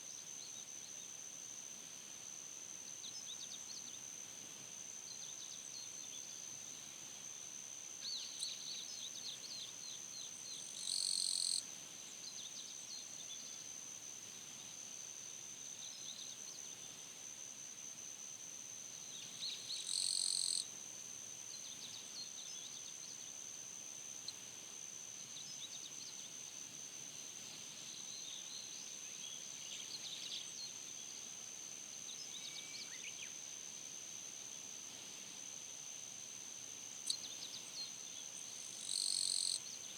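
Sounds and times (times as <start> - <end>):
high-pitched insect trill: 10.6 - 11.6, 19.5 - 20.7, 37.0 - 39.8.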